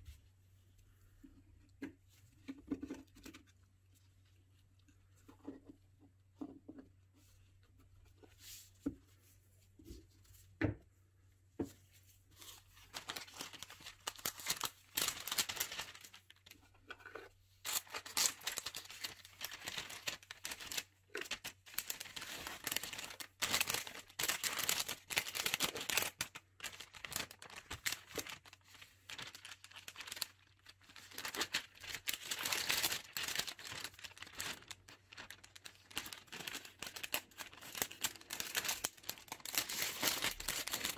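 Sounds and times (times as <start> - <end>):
metallic foil crinkling: 12.5 - 16.6, 17.6 - 40.9.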